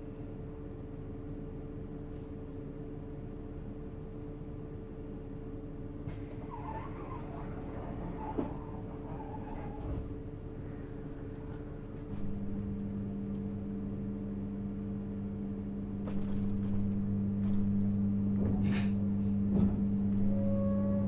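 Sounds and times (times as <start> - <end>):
electric train equipment humming: 6.1 - 21.0.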